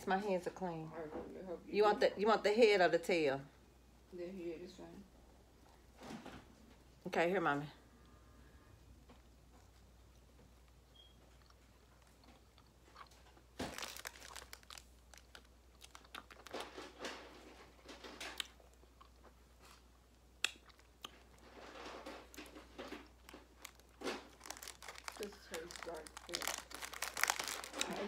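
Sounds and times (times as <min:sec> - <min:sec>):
crunchy chewing: 0:09.2 - 0:28.0.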